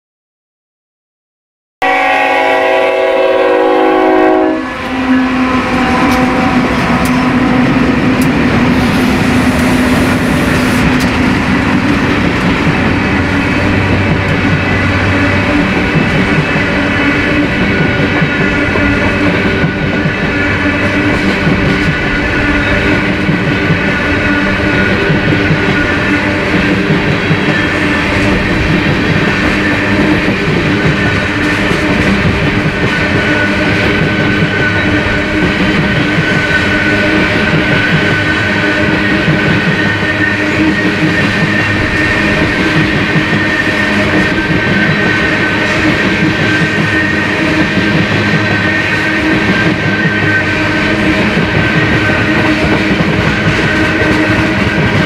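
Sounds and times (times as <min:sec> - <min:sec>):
train horn chord: 0:01.8 - 0:07.8
diesel locomotive engine drone: 0:01.8 - 0:55.0
wheels on rail: 0:01.8 - 0:55.0.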